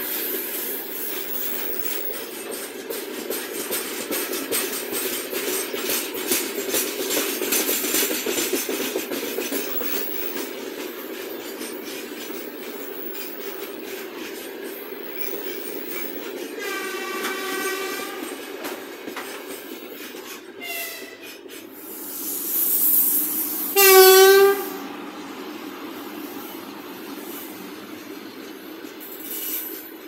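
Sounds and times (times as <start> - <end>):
freight train wheels clattering: 0.0 - 30.0.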